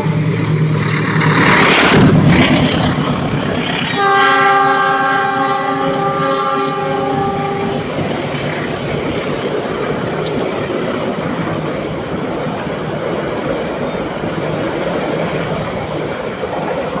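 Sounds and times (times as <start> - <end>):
train passing with wheel clatter: 0.0 - 17.0
multi-tone train horn: 3.9 - 8.8.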